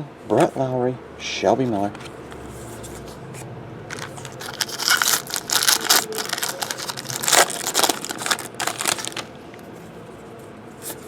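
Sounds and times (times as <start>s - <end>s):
cards and packs rustling: 3.9s - 9.7s.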